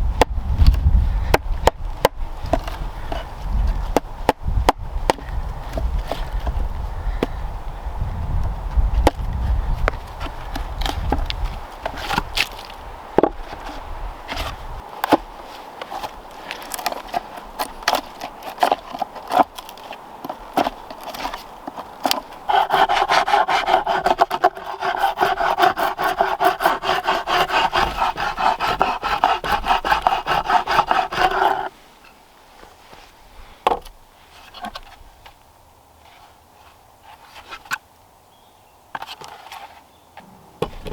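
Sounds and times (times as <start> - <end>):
knocks and scraping on wood: 0.2 - 7.4, 8.7 - 35.4, 38.9 - 39.8, 40.6 - 40.9
hand saw cutting wood: 13.5 - 31.8.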